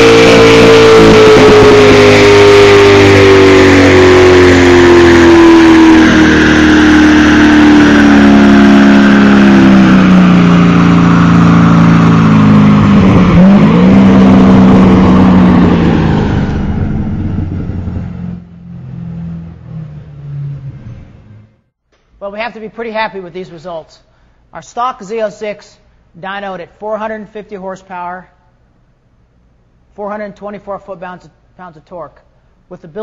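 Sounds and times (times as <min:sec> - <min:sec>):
car engine winding down on dyno: 0:00.0 - 0:21.8.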